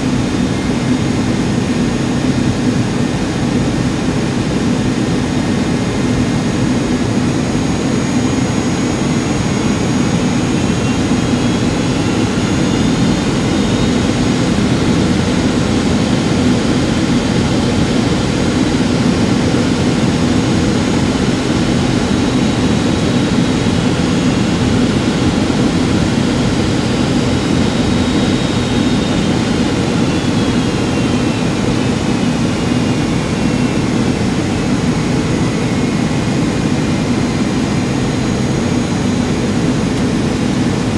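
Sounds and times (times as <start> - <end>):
high turbine whine: 0.0 - 40.9
jet engine drone in cabin: 0.0 - 40.9.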